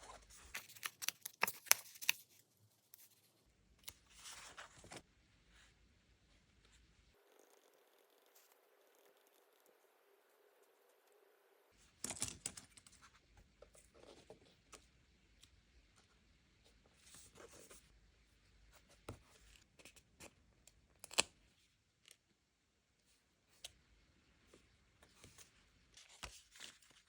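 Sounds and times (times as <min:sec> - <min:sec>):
paper rustling: 0:00.0 - 0:03.2.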